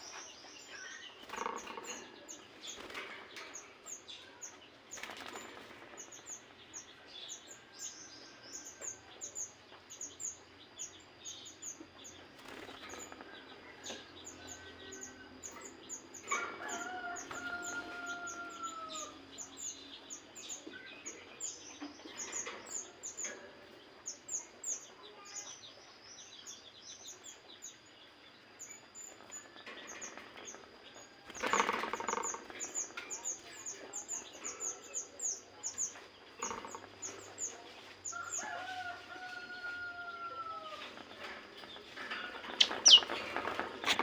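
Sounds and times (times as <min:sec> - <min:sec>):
small birds chirping: 0:00.0 - 0:44.0
wing flapping: 0:42.0 - 0:44.0.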